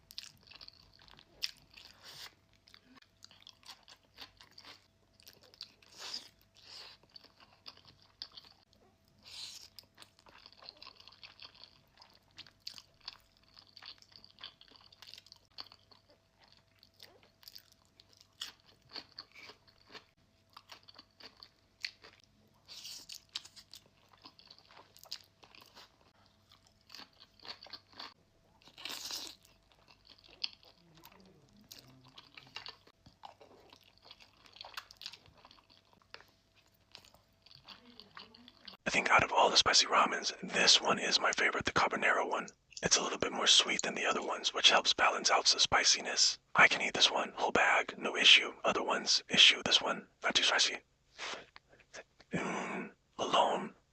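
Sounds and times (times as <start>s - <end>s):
crunchy food being chewed: 0.0s - 38.8s.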